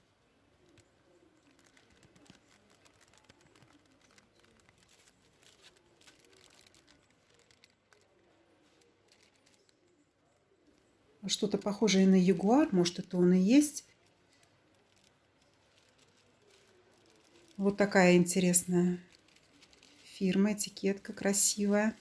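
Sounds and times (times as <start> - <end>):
faint background murmur: 0.0 - 22.0
faint clicks: 0.6 - 11.6.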